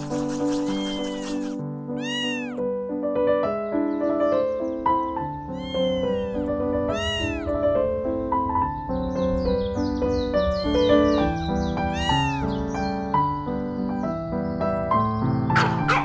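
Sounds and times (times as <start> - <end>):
soft piano-like background music: 0.0 - 16.0
kitten meowing: 0.5 - 2.7, 5.0 - 8.3, 11.4 - 13.0.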